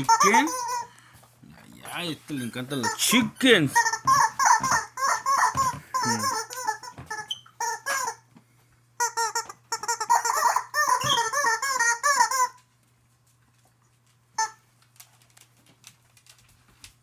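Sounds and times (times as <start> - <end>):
rubber chicken toy squeaking: 0.0 - 0.9, 2.8 - 8.2, 9.0 - 12.6, 14.4 - 14.6.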